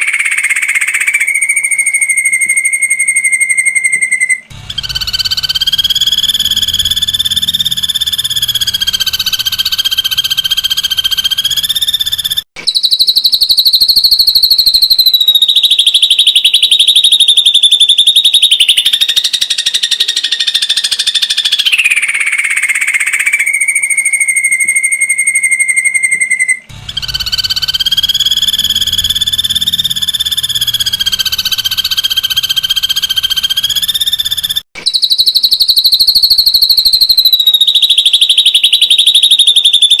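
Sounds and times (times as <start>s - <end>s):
bird trilling calls: 0.0s - 40.0s
bird whistle: 0.0s - 40.0s.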